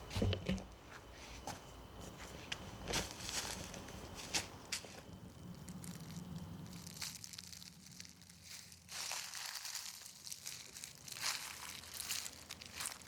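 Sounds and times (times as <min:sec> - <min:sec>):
footsteps on a trail: 0:00.9 - 0:05.1, 0:08.4 - 0:13.0.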